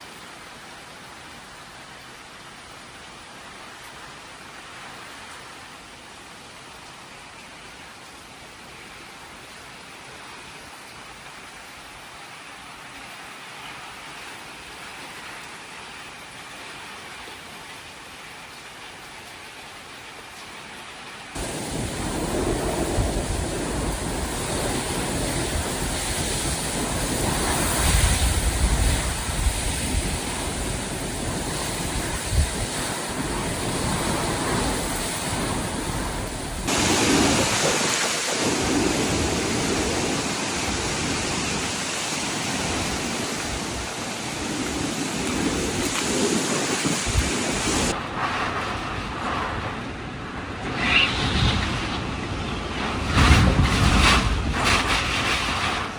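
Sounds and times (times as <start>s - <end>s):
rain: 0.0s - 55.9s
strong wind: 21.4s - 55.9s.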